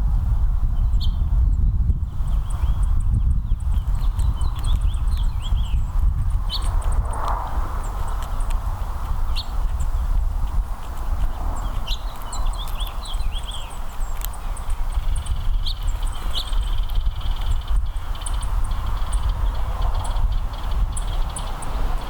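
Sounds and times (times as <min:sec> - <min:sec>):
steady low rumble: 0:00.0 - 0:22.0
songbirds chirping: 0:00.8 - 0:22.0
faint clicks: 0:12.1 - 0:14.4.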